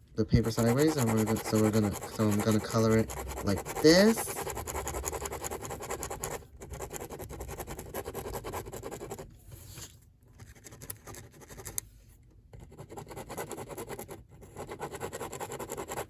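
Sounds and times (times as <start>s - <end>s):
drawing tool scribbling on paper: 0.2s - 9.3s, 12.6s - 16.0s.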